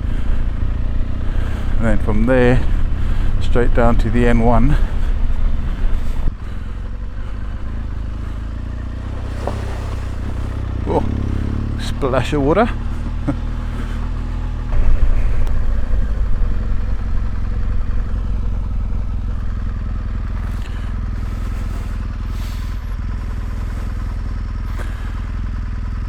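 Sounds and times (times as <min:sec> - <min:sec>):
motorcycle engine running: 0:00.0 - 0:26.0
tyres splashing through water: 0:08.9 - 0:11.1.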